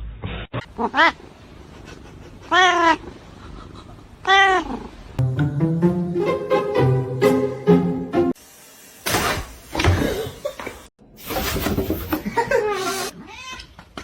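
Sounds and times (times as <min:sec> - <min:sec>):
music with steady notes: 0:05.2 - 0:08.3
cat meowing: 0:13.2 - 0:13.7.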